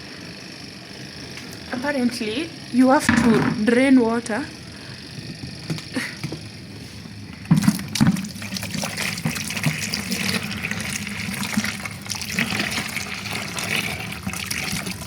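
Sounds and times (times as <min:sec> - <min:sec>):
water draining from washing machine: 0:07.4 - 0:15.0.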